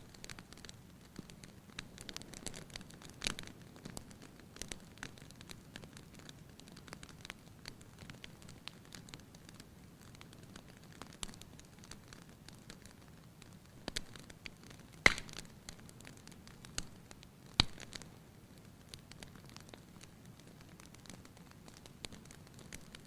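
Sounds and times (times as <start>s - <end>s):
wood fire crackling: 0.0s - 23.0s
fire popping sharply: 13.9s - 23.0s.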